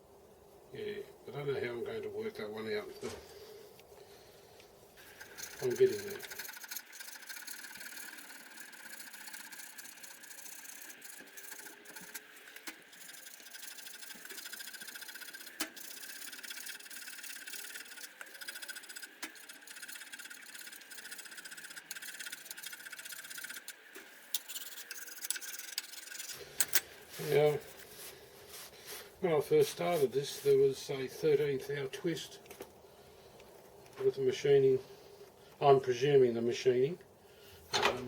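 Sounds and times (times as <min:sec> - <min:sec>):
metal-on-metal rasping: 0:05.0 - 0:27.8.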